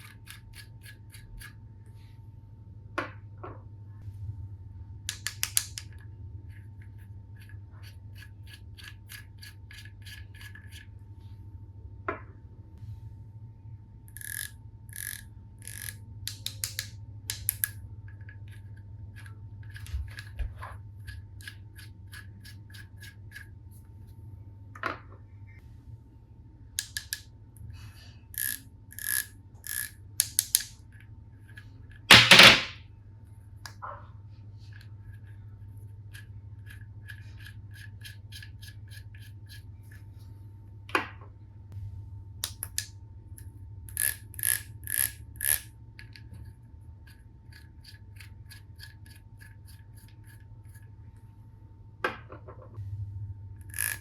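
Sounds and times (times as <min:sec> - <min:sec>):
low hum: 0:00.0 - 0:29.6, 0:38.8 - 0:48.2, 0:49.2 - 0:54.0
plastic toy tools clicking: 0:05.1 - 0:05.9, 0:14.2 - 0:17.8.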